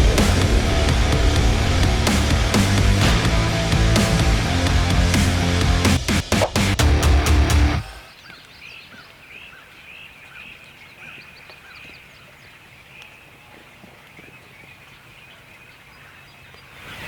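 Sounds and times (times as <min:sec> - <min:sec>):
music: 0:00.0 - 0:08.0
songbird chirping: 0:07.8 - 0:17.0.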